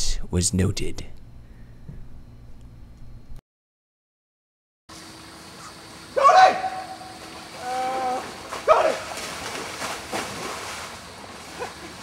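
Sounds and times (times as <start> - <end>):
person shouting: 6.2 - 7.0, 7.6 - 9.1.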